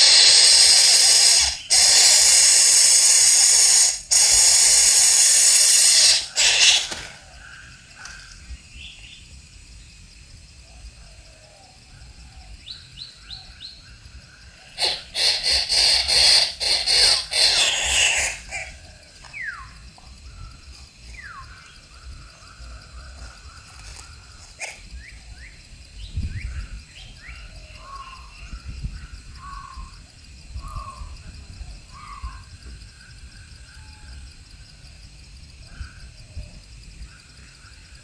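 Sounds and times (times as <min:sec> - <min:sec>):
birds calling: 0:00.0 - 0:09.3, 0:12.3 - 0:29.9.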